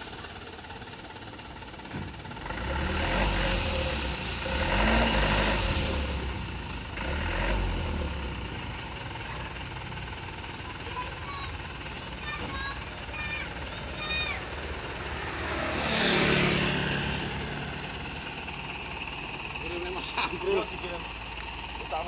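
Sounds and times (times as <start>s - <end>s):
dump truck diesel engine revving: 0.0s - 22.0s
short high-pitched squeaks: 2.9s - 6.2s, 7.0s - 7.8s.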